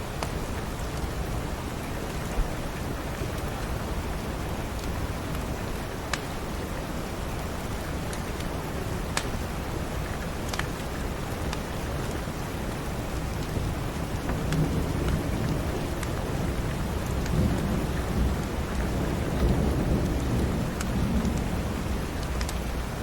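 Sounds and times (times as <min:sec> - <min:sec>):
rain hissing: 0:00.0 - 0:23.0
thunder rumbling: 0:13.2 - 0:23.0.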